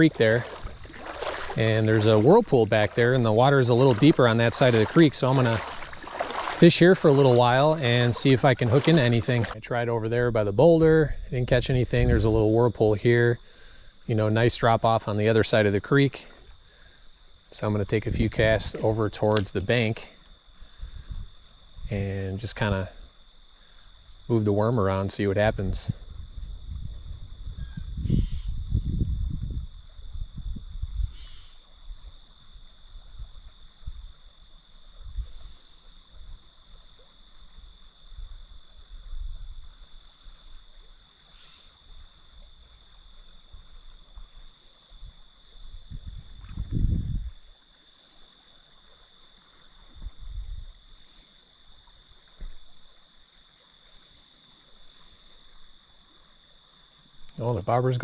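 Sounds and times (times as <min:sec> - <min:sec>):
low microphone rumbles: 0:00.0 - 0:13.0, 0:25.5 - 0:31.2, 0:45.9 - 0:47.4
crickets trilling: 0:00.0 - 0:58.0.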